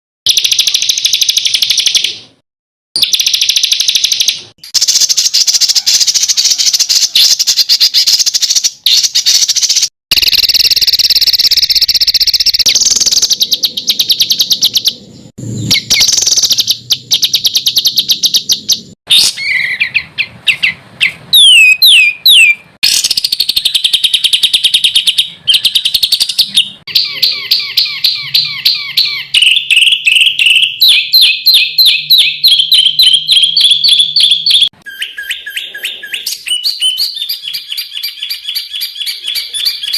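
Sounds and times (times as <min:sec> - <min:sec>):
harsh rapid bird notes: 0:00.3 - 0:02.4, 0:03.0 - 0:39.9
rapid bird chirps: 0:00.3 - 0:02.4, 0:03.0 - 0:39.9
down-slurred bird whistles: 0:03.0 - 0:39.9.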